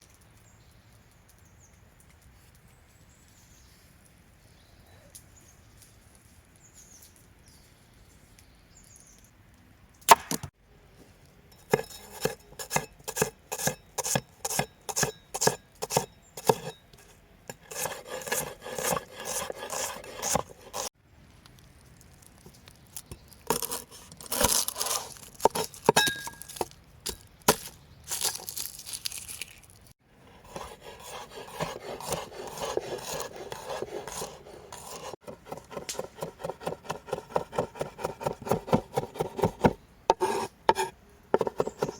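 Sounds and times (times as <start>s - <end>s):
scraping and rubbing: 11.6s - 21.0s, 23.4s - 26.7s, 30.2s - 41.9s.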